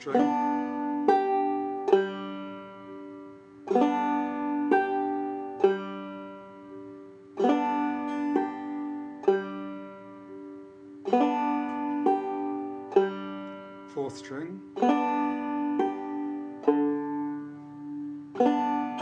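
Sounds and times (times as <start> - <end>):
banjo played slowly: 0.0 - 19.0.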